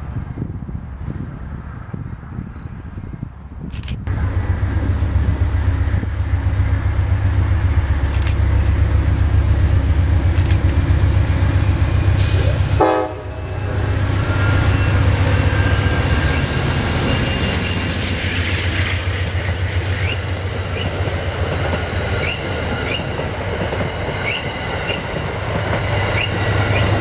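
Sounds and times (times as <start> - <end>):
diesel locomotive engine rumbling: 0.0 - 27.0
train passing: 4.1 - 27.0
train horn: 12.2 - 17.6.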